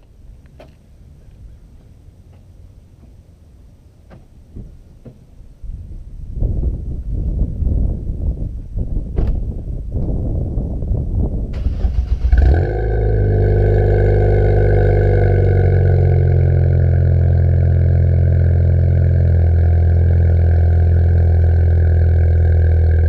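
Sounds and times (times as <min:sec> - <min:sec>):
car engine revving and idling: 0:11.6 - 0:23.0.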